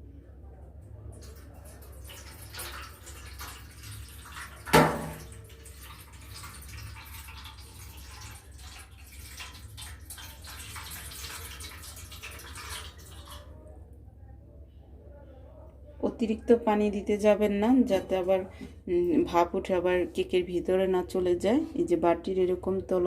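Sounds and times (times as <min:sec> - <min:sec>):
water pouring into pot: 0:01.1 - 0:13.6.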